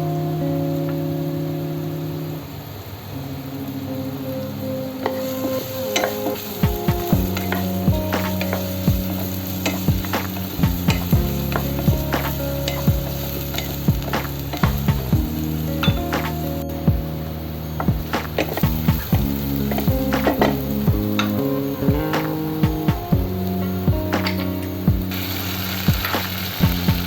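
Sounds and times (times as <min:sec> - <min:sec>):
sauce sizzling in a pan: 0:05.1 - 0:16.1, 0:17.6 - 0:22.6, 0:25.0 - 0:27.0.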